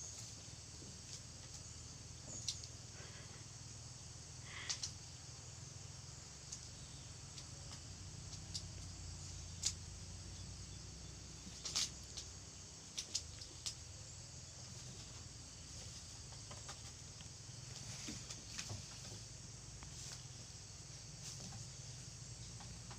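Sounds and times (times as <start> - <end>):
faint low hum: 0.0 - 22.9
kittens tapping and scuffing: 14.6 - 20.5, 21.1 - 22.9.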